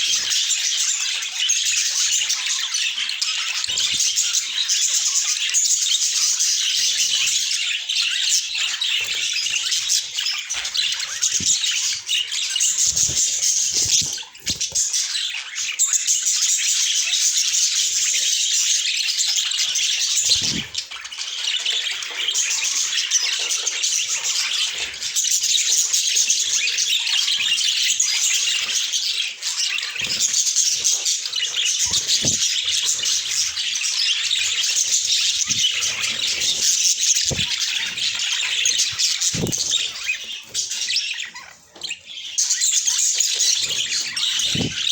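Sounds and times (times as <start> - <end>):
budgerigars chattering and warbling: 0.0 - 44.9
wing flutters: 8.9 - 15.0, 20.2 - 20.9, 30.0 - 33.5, 34.9 - 40.8, 43.4 - 44.9.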